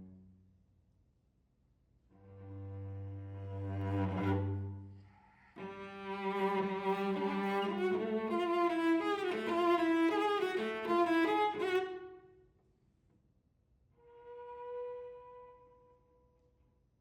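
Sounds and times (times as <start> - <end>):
solo cello bowing: 2.2 - 5.0, 5.6 - 12.2.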